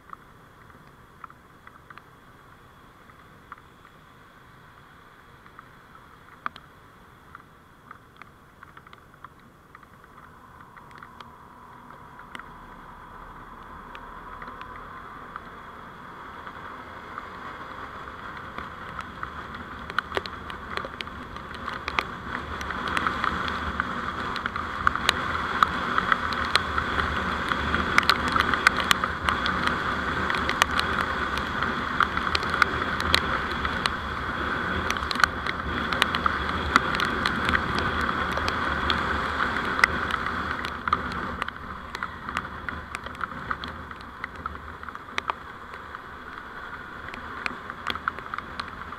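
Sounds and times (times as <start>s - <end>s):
road and engine noise: 0.0s - 48.9s
small sharp clicks and rattles: 7.3s - 15.6s, 18.0s - 48.9s.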